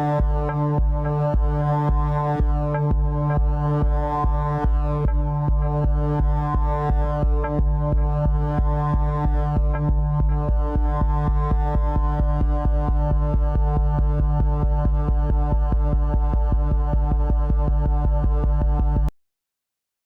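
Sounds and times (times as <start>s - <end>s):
electronic music with synthesizer chords: 0.0s - 19.1s.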